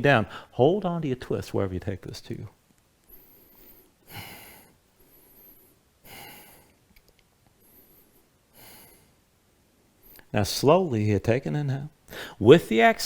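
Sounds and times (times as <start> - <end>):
person breathing: 0.3 - 0.6, 3.1 - 6.8, 7.6 - 9.2, 12.1 - 12.4.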